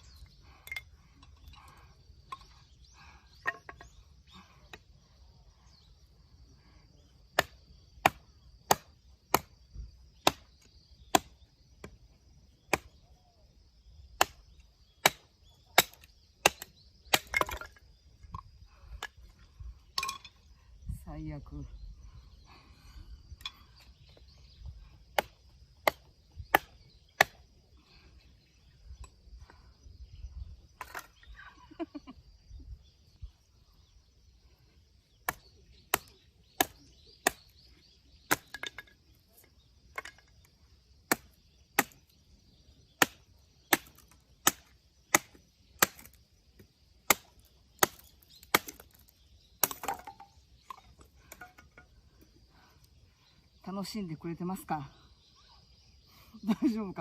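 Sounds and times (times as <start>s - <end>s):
blade chopping into wood: 10.2s - 10.5s, 14.2s - 17.7s, 38.3s - 38.8s, 41.1s - 42.0s, 43.0s - 46.2s, 47.0s - 50.2s.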